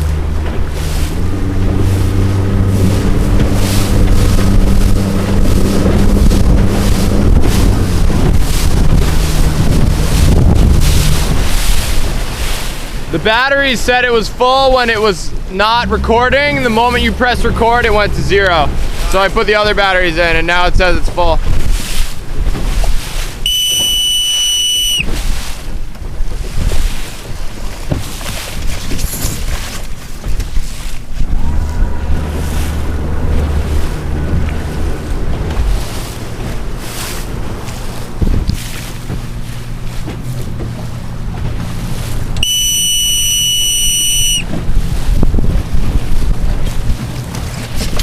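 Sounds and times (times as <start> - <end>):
low rumble: 0.0 - 12.9, 14.0 - 23.3, 31.0 - 42.5
wind buffeting microphone: 0.0 - 13.4, 14.2 - 24.0, 24.9 - 42.5, 44.4 - 48.0
water splashing against boat: 0.0 - 48.0
high electronic beep: 23.5 - 25.0, 42.4 - 44.4.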